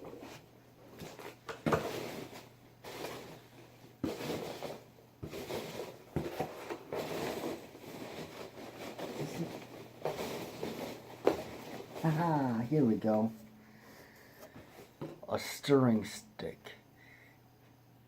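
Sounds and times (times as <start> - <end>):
hands rummaging packing peanuts: 1.0 - 13.3.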